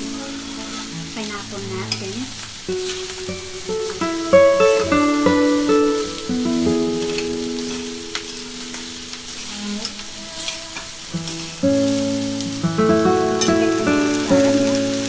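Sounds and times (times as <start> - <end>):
background music: 0.0 - 8.6, 11.6 - 15.0
rice sizzling in a frying pan: 0.0 - 15.0.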